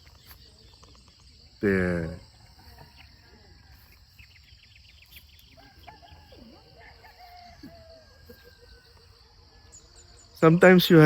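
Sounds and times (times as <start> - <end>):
insects chorus: 0.0 - 11.0
small bird chirps: 2.6 - 10.6
distant rooster crowing: 5.4 - 10.4.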